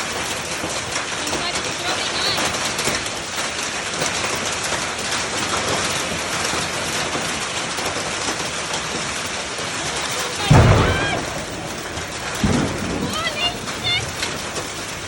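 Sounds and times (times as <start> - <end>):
heavy rain and hail pelting: 0.0 - 15.0.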